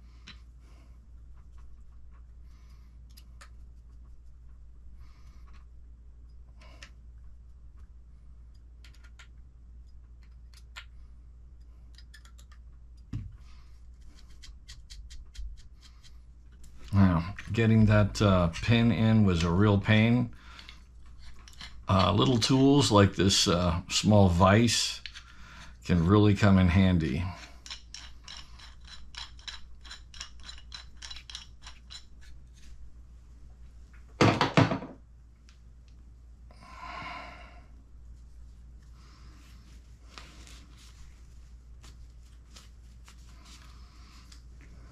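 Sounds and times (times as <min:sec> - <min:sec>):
clicks of small metal parts: 0:27.5 - 0:32.3.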